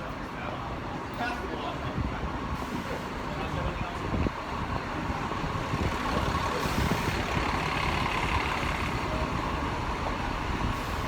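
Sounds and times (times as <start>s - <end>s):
street traffic noise: 0.0s - 11.0s
heavy vehicle engine running: 4.4s - 11.0s.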